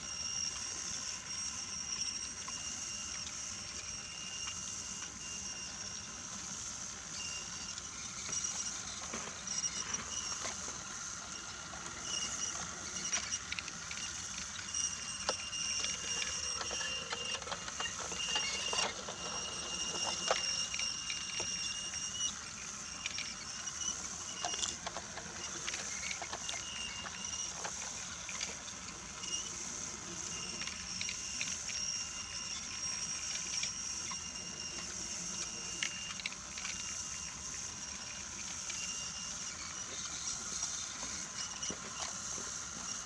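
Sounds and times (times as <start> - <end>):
toy train motor whine: 0.0 - 43.0
wheels clacking over track joints: 9.0 - 22.2, 23.0 - 29.2.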